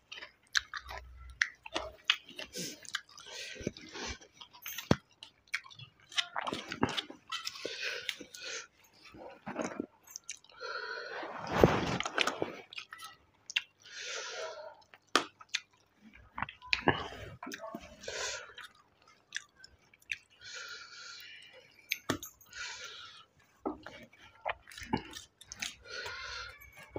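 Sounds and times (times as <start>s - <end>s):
person chewing rice: 0.0s - 26.9s.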